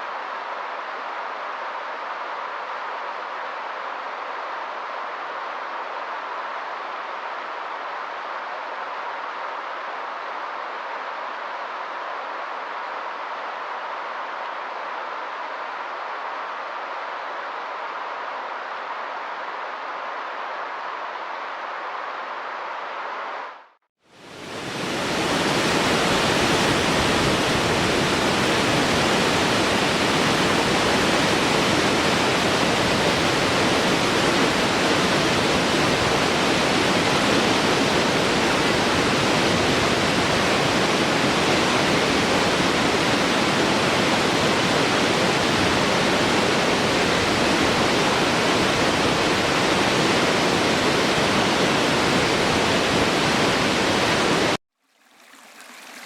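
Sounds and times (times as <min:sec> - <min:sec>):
waterfall rushing: 0:24.2 - 0:54.6.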